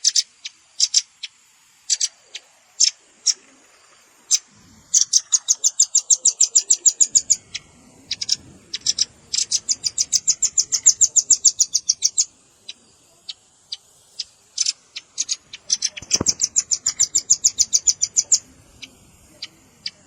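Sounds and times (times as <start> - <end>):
nuthatch high trills: 0.0 - 20.0.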